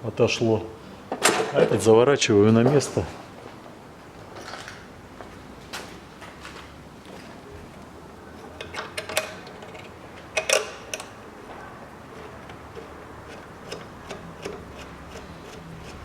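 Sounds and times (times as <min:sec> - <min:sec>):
hand tools clicking on metal: 0:12.1 - 0:16.0.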